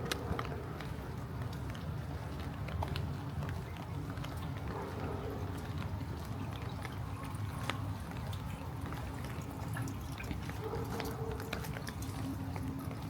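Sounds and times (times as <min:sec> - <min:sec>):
gentle rain falling: 0:00.0 - 0:13.0.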